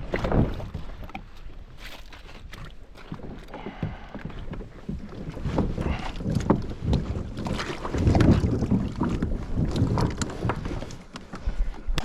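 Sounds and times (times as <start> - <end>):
water splashing: 0.0 - 12.0
paddle knocking on hull: 3.1 - 11.6
wind buffeting microphone: 3.7 - 12.0.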